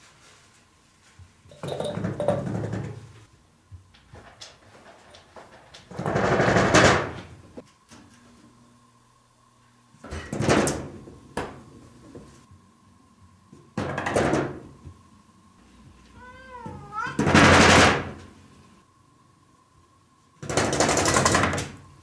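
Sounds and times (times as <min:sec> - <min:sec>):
cat meowing: 0:16.2 - 0:17.3.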